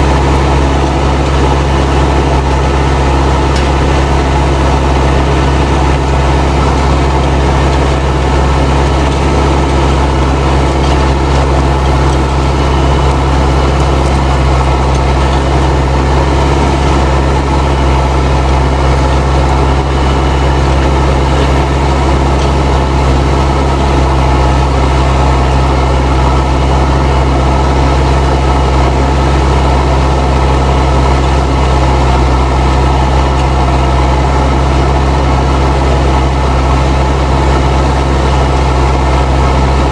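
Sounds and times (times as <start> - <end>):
tractor diesel engine under load: 0.0 - 39.9
turbo whistling: 0.9 - 29.6.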